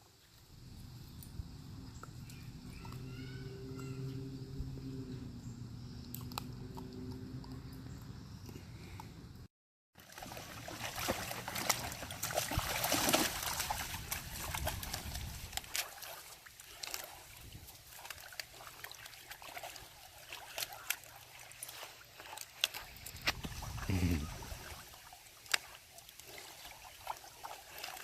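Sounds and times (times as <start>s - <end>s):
water splashing and trickling: 10.0s - 28.0s.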